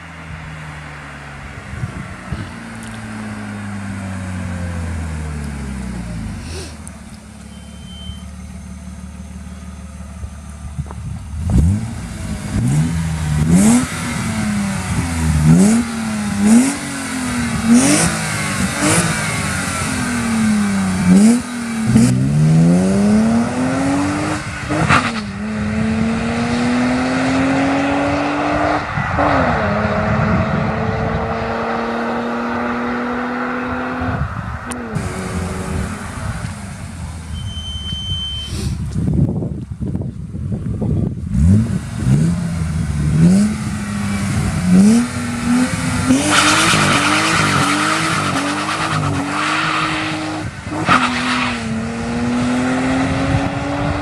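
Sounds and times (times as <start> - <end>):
car engine revving: 0.0 - 39.2, 40.6 - 54.0
exhaust cracks: 34.0 - 38.0.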